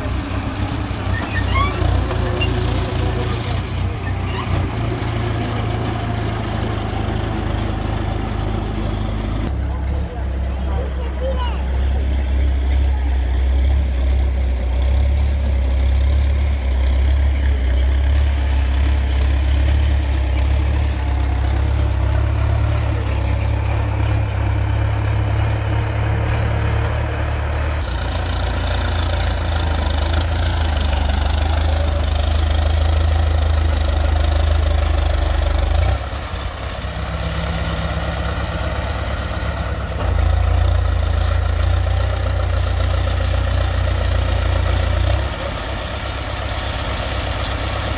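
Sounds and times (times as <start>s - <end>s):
heavy diesel machinery rumbling: 0.0s - 47.9s.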